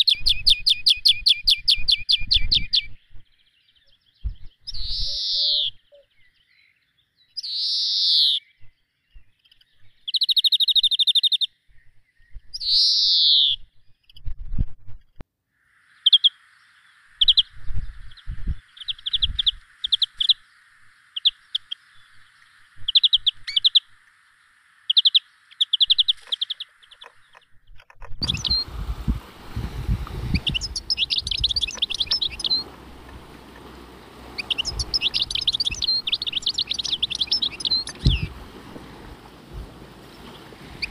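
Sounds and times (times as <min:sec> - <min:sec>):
birds calling: 0:00.0 - 0:14.2, 0:15.8 - 0:40.9
quick bird chirps: 0:28.2 - 0:29.2, 0:29.8 - 0:40.9
rushing noise: 0:28.2 - 0:40.9.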